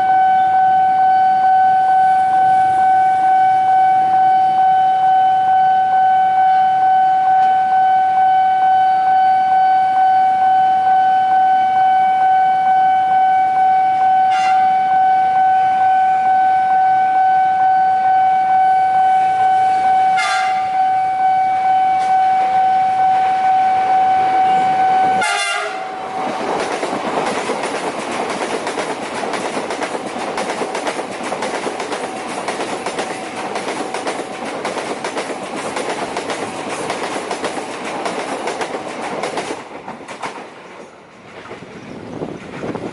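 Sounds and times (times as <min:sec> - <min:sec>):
train horn blasts: 0:00.0 - 0:26.4
train passing at speed: 0:00.0 - 0:42.9.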